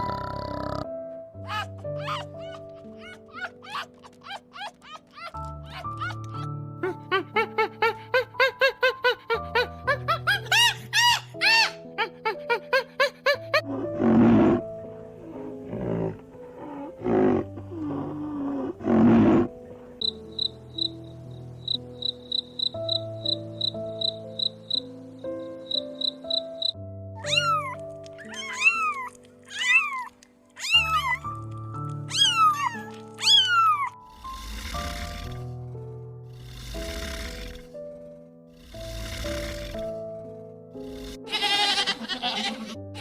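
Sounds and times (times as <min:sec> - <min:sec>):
animal growling calls: 0:00.0 - 0:00.9, 0:38.5 - 0:39.9
background music: 0:00.0 - 0:43.0
rising and falling animal calls: 0:01.5 - 0:08.8, 0:26.0 - 0:31.3, 0:32.1 - 0:35.4.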